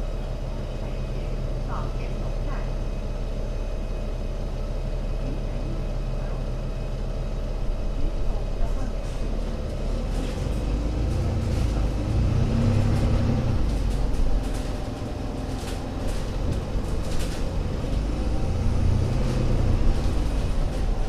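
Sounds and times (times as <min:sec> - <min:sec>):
bus diesel engine rumbling: 0:00.0 - 0:21.0
light rattles: 0:08.3 - 0:21.0.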